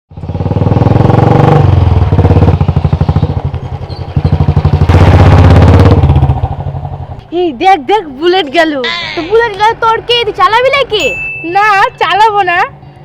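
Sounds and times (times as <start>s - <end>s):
motorcycle engine riding by: 0.1s - 8.3s.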